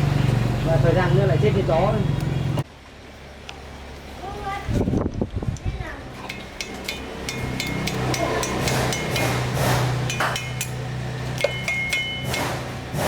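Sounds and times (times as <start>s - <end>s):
metal tapping on metal: 6.2s - 12.8s.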